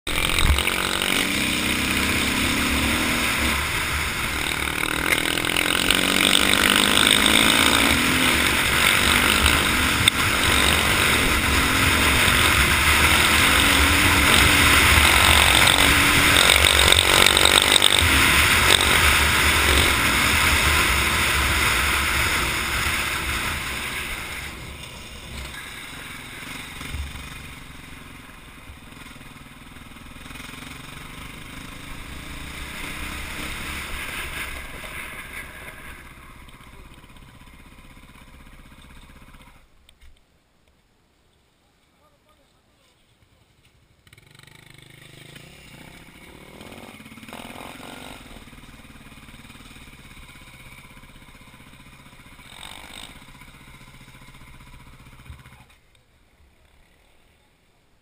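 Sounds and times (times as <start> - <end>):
motorcycle engine revving: 0.0 - 39.7, 43.3 - 55.8.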